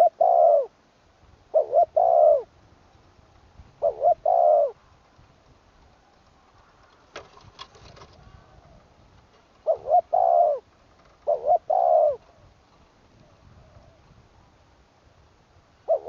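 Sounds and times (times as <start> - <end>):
dove cooing: 0.0 - 0.8, 1.5 - 2.5, 3.7 - 4.9, 9.6 - 14.2, 15.8 - 16.0
faint clicks: 5.0 - 8.2.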